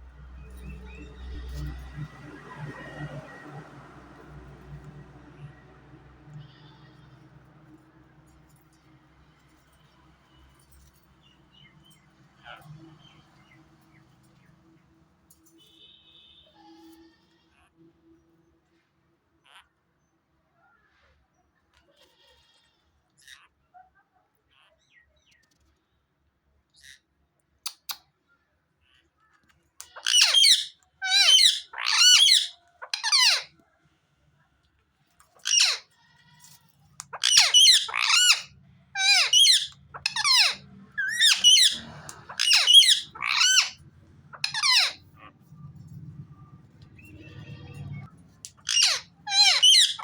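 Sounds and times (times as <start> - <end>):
parrot squawking: 29.8 - 33.5, 35.4 - 35.9, 37.0 - 45.7, 47.0 - 50.0.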